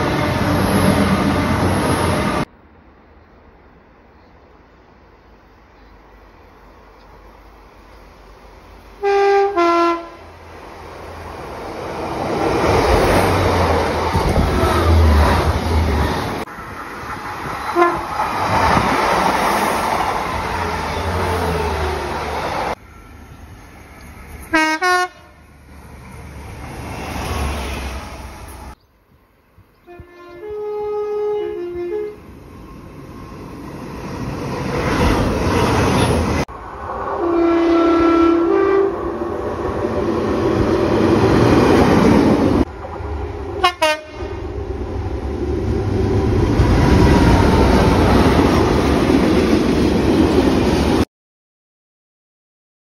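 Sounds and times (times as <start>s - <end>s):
multi-note train horn: 9.0s - 10.3s, 17.7s - 18.1s, 24.5s - 25.4s, 29.8s - 32.2s, 37.2s - 39.0s, 43.6s - 44.4s
train wheels rumbling on rail: 9.1s - 28.8s, 32.2s - 51.1s.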